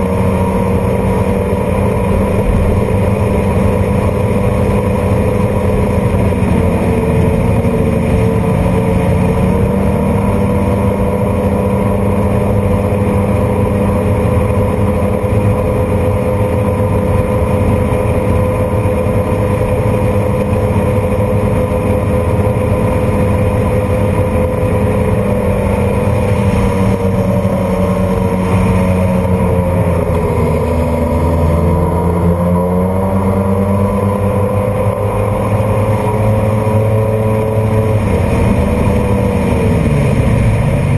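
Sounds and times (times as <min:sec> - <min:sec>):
jet boat engine droning: 0:00.0 - 0:40.9.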